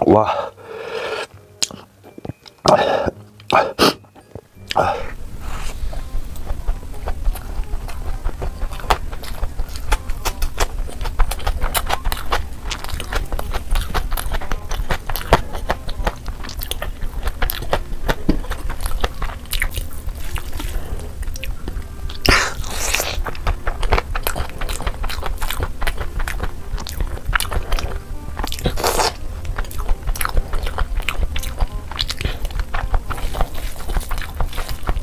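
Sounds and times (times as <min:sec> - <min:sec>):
wet chewing and lip-smacking: 0:04.6 - 0:35.0.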